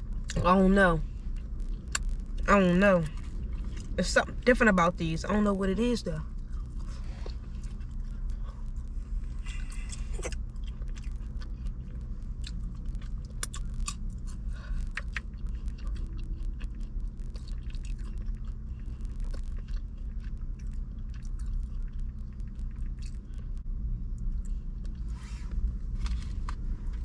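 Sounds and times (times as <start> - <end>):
chewing and crunching fries: 0.0 - 27.0
low hum in car cabin: 0.0 - 27.0.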